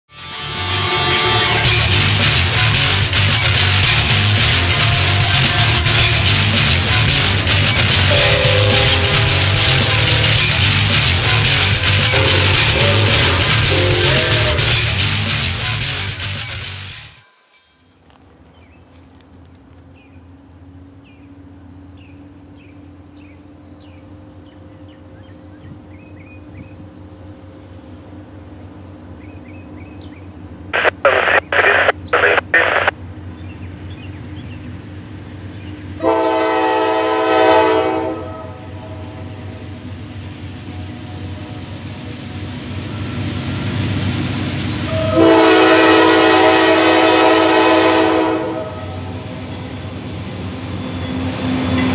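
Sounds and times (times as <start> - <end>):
train air horn blasts: 0.1 - 3.0, 7.9 - 10.5, 11.7 - 14.9, 36.0 - 39.4, 44.8 - 49.2
diesel locomotive rumble: 0.2 - 17.2, 18.0 - 51.9
birds chirping: 18.3 - 36.0.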